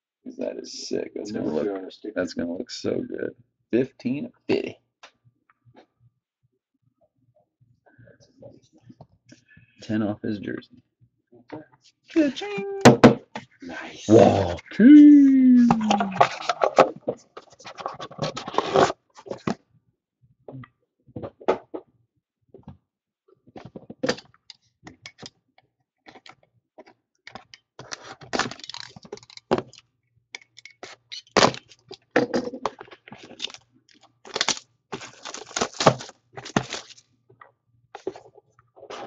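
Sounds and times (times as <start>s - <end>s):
packaging crinkling and tearing: 27.8s - 29.8s, 32.7s - 37.0s.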